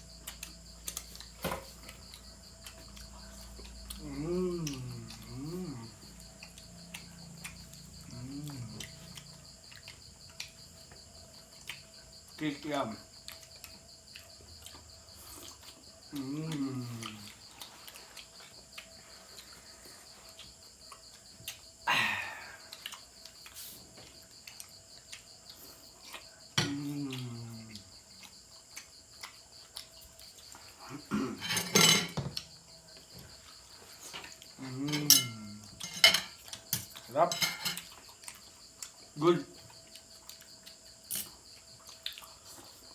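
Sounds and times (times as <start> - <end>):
crickets chirping: 0.0 - 42.9
plates and utensils clattering: 31.2 - 32.5, 34.8 - 37.9.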